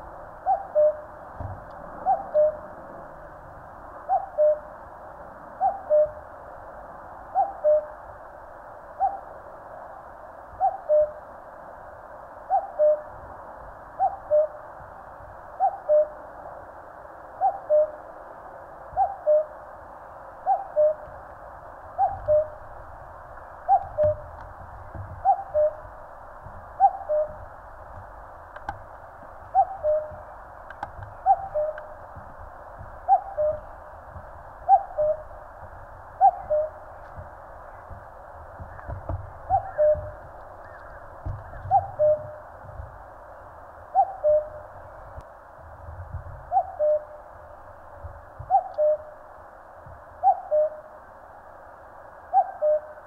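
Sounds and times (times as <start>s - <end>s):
cuckoo calling: 0.4s - 1.2s, 2.0s - 2.7s, 4.0s - 4.7s, 5.6s - 6.2s, 7.3s - 8.0s, 9.0s - 9.3s, 10.6s - 11.3s, 12.5s - 13.1s, 14.0s - 14.6s, 15.6s - 16.2s, 17.4s - 18.0s, 18.9s - 19.6s, 20.4s - 21.1s, 21.9s - 22.7s, 23.6s - 24.4s, 25.1s - 25.9s, 26.6s - 27.5s, 29.4s - 32.2s, 33.0s - 34.0s, 34.6s - 35.4s, 36.2s - 38.0s, 38.6s - 42.5s, 43.9s - 44.7s, 46.4s - 47.3s, 48.4s - 49.2s, 50.2s - 50.9s, 52.3s - 53.0s.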